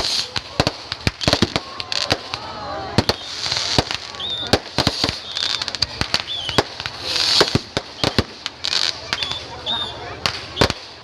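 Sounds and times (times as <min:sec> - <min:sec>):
crackling hiss: 0:00.0 - 0:11.0
firecracker bangs: 0:00.0 - 0:11.0.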